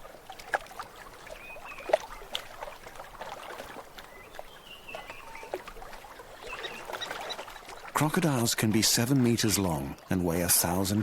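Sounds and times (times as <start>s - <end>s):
water splashing and trickling: 0.0s - 11.0s
thin whistle-like calls: 1.3s - 2.0s, 6.4s - 7.8s.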